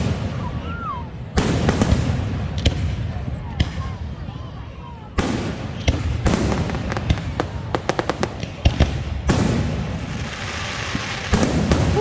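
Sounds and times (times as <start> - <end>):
fireworks cracks and bangs: 0.0 - 12.0
fireworks crackling hiss: 5.2 - 12.0.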